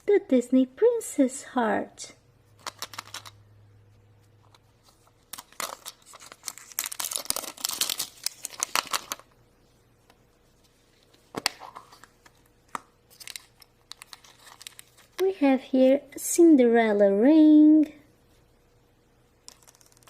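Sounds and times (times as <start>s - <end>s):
wrapper tearing and crinkling: 5.3s - 9.3s, 13.1s - 15.1s.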